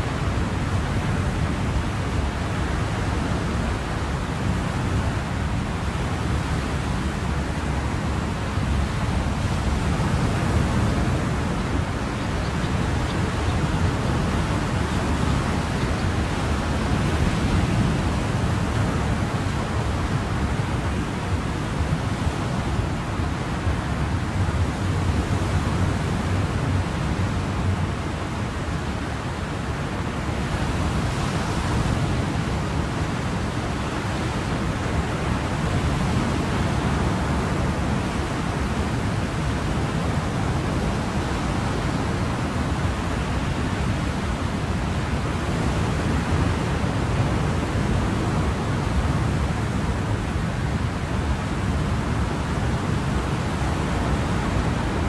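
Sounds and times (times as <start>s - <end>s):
ocean waves washing: 29.4s - 55.0s.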